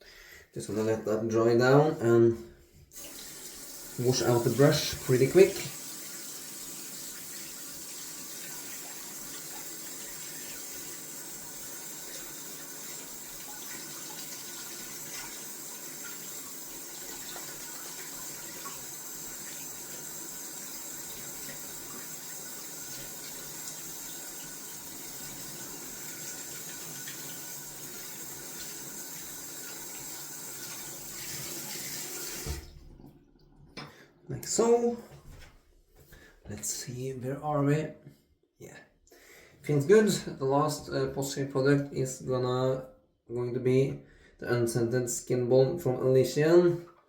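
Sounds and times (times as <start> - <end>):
shaving brush being rinsed: 2.9 - 32.7
tap running into a sink: 12.0 - 33.1.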